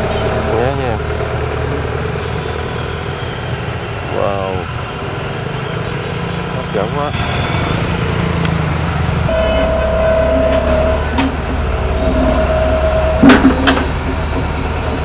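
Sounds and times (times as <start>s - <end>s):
diesel engine running: 0.0s - 15.0s
hydraulic whine: 0.0s - 15.0s
sharp metallic knocks: 9.3s - 15.0s.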